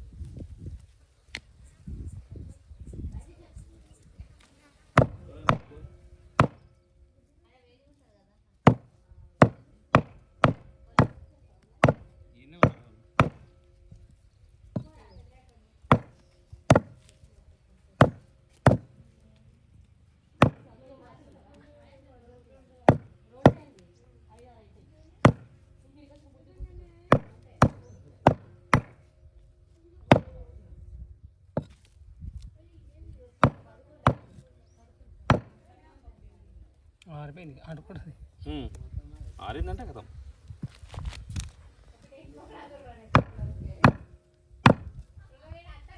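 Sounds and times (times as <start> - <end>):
meat cleaver chopping meat: 5.0 - 5.7, 6.4 - 6.6, 8.7 - 11.2, 11.8 - 13.6, 15.9 - 17.1, 18.0 - 18.9, 22.9 - 23.6, 25.2 - 25.5, 27.1 - 29.0, 33.4 - 34.4, 35.3 - 35.6, 43.2 - 44.1.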